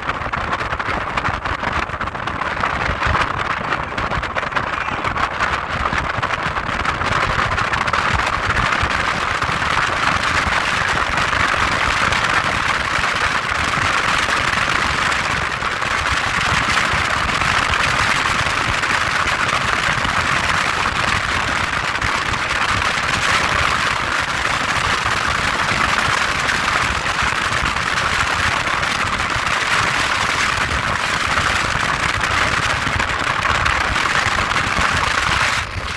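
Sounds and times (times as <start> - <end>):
wind noise on microphone: 0.0 - 35.9
boat engine: 35.4 - 35.9.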